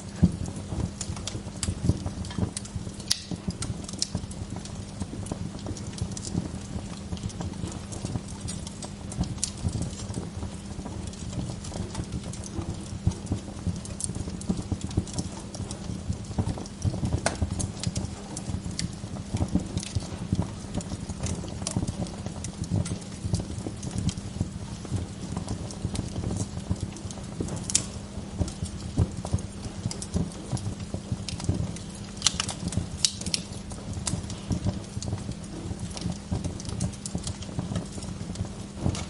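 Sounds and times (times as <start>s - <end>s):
fire crackling and popping: 0.0s - 39.0s
low rumble of flames: 0.0s - 39.0s.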